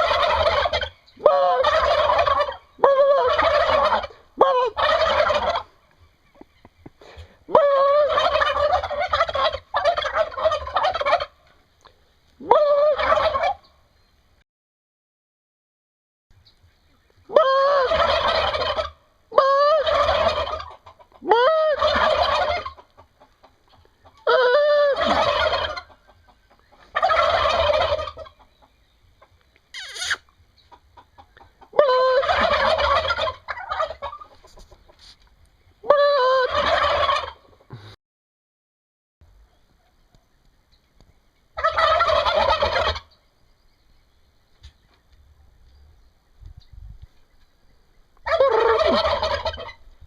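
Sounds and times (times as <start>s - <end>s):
turkeys gobbling: 0.0s - 13.8s, 16.8s - 37.9s, 39.3s - 43.3s, 47.5s - 50.0s
short higher turkey call: 29.7s - 30.3s.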